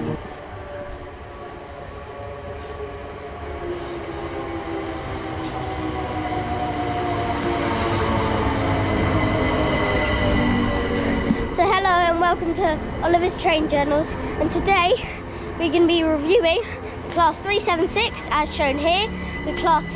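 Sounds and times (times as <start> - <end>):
train rumble: 0.0 - 19.9.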